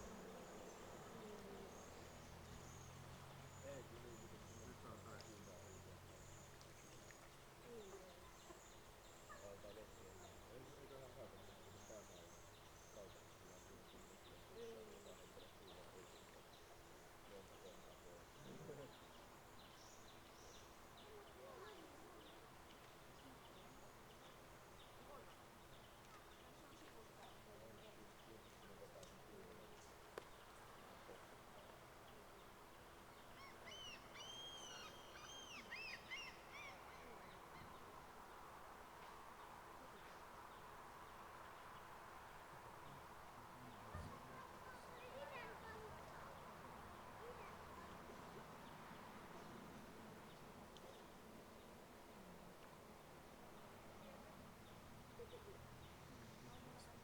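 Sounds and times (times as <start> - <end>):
faint outdoor hiss: 0.0 - 57.0
birds calling: 33.2 - 37.9.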